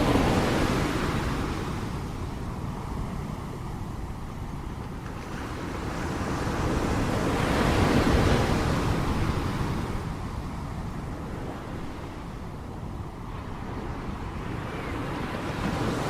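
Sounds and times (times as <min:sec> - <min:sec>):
ocean wave breaking: 0:00.0 - 0:16.0.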